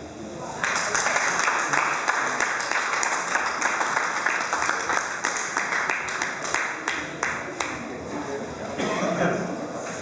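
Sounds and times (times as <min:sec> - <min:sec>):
audience applauding: 0:00.6 - 0:07.8.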